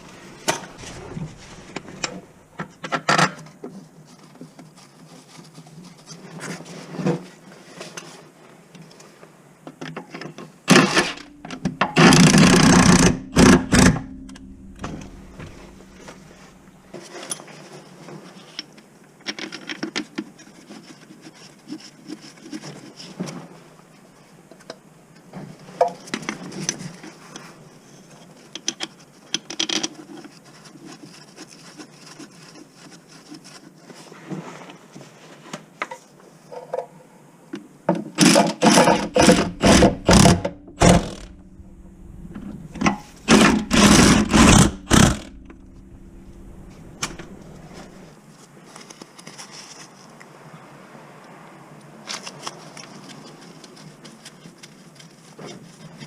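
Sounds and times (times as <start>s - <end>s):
cordless power tool bursts: 38.6s - 41.3s, 42.9s - 45.4s.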